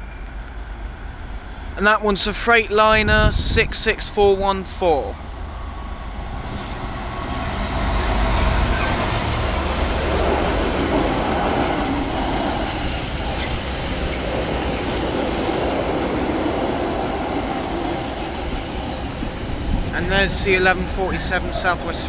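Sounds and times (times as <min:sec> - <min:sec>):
locomotive engine rumble: 0:04.9 - 0:22.0
train wheels rumbling on rails: 0:04.9 - 0:22.0.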